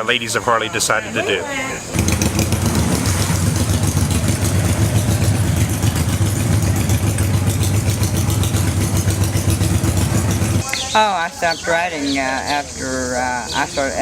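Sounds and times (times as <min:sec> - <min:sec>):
motorcycle engine idling: 0:02.0 - 0:10.6.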